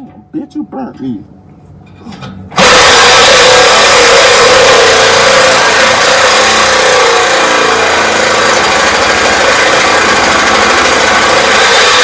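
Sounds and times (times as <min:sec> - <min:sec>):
reciprocating saw cutting metal pipe: 0:02.6 - 0:12.0.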